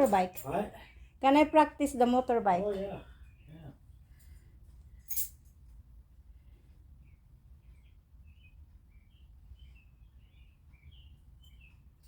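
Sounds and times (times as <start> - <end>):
faint bird chirps: 7.0 - 12.0.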